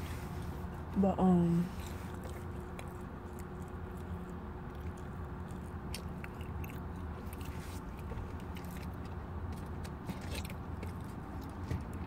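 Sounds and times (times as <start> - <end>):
low hum in car cabin: 0.0 - 12.0
quiet chewing: 1.7 - 12.0.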